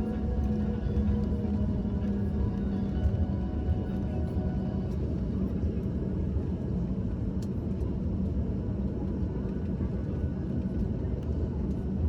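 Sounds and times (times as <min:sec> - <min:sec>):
jet airliner cabin rumble: 0:00.0 - 0:12.0.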